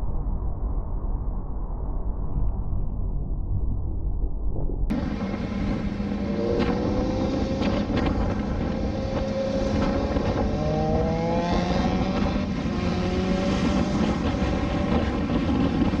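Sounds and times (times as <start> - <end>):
wind and road rush: 4.8 - 16.0
motorcycle engine running: 4.9 - 16.0.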